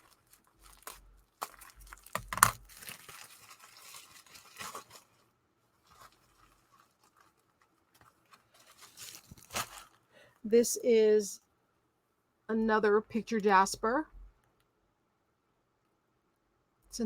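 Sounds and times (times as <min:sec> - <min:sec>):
packing wrap crinkling: 0:00.0 - 0:10.3.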